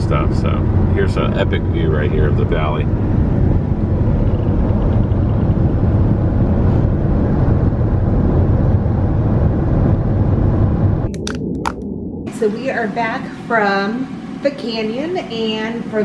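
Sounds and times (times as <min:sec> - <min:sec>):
car driving rumble: 0:00.0 - 0:11.8
road and wind noise: 0:00.0 - 0:12.3.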